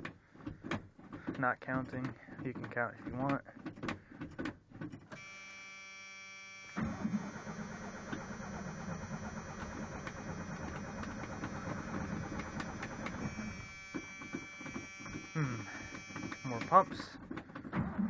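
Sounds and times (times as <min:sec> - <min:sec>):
electrical buzz: 0:05.2 - 0:17.0
starter cranking engine: 0:06.6 - 0:17.1.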